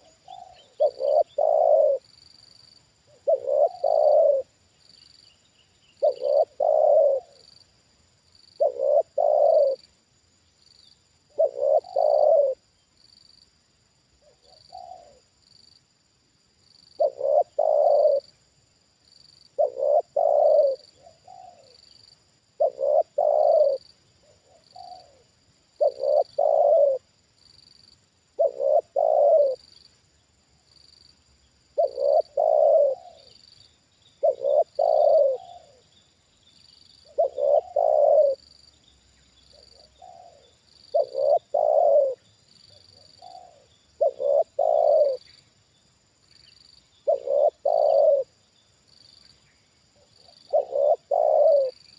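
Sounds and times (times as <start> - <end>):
dove cooing: 0.0 - 2.1, 3.1 - 4.6, 5.9 - 7.4, 8.6 - 9.9, 11.3 - 12.7, 14.2 - 15.3, 17.0 - 18.4, 19.5 - 21.9, 22.5 - 27.1, 28.3 - 29.7, 31.7 - 33.5, 34.2 - 36.0, 37.0 - 38.4, 39.5 - 45.4, 47.0 - 48.4, 50.0 - 51.9.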